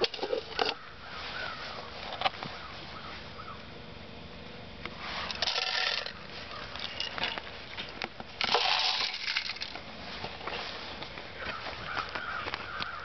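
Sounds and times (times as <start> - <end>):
bird seed poured into feeder: 5.2 - 6.2.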